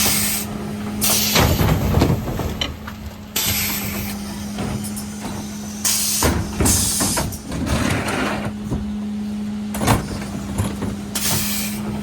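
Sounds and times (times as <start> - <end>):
truck humming: 0.0 - 12.0
air hiss: 5.8 - 7.2.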